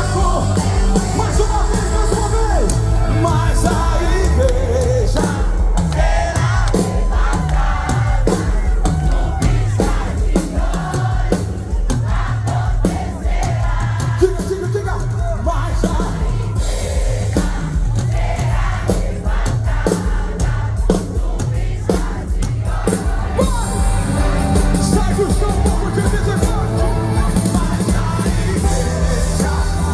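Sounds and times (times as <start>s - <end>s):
crowd: 0.0s - 29.9s
drum hits: 0.0s - 29.9s
live band music: 0.0s - 29.9s
person singing: 23.4s - 29.9s.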